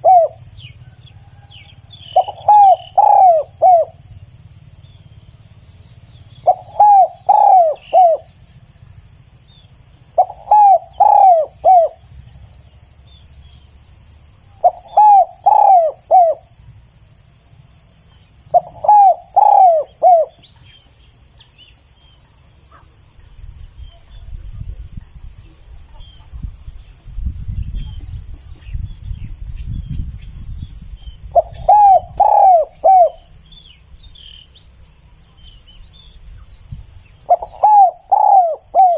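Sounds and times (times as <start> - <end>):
dove cooing: 0.0 - 4.0, 6.4 - 8.5, 10.1 - 12.1, 14.6 - 16.6, 18.5 - 20.6, 31.2 - 33.3, 37.3 - 38.9
insects chirping: 0.0 - 38.9.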